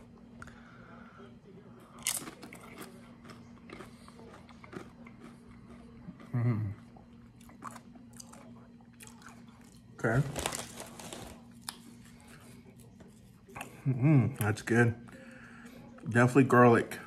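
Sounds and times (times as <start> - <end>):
chewing tortilla chip: 1.8 - 13.8
person humming mmm: 6.3 - 6.8.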